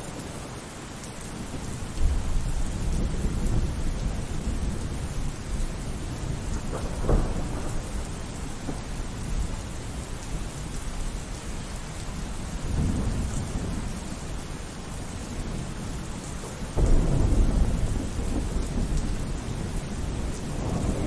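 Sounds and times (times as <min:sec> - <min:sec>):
steady rain: 0:00.0 - 0:21.0
thunder rumbling: 0:01.5 - 0:11.6, 0:12.2 - 0:21.0
thunder clap: 0:06.0 - 0:09.5, 0:16.7 - 0:21.0.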